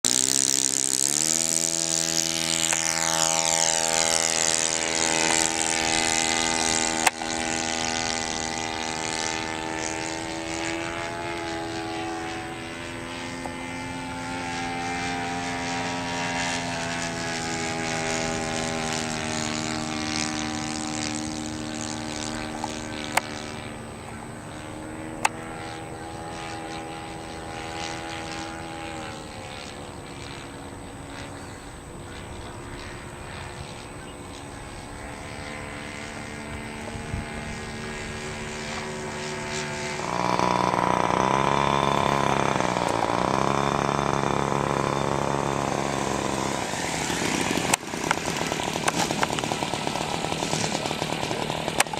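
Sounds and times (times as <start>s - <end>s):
model airplane motor and propeller: 0.0s - 51.9s.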